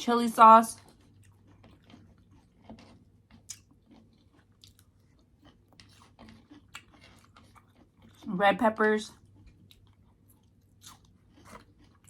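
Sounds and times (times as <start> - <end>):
person chewing food: 0.8 - 8.3, 9.1 - 12.0.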